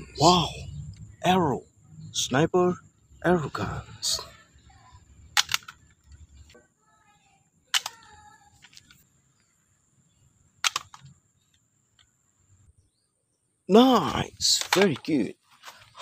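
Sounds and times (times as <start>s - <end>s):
toy crossbow plastic snaps: 5.3s - 5.8s, 7.7s - 9.0s, 10.6s - 11.1s.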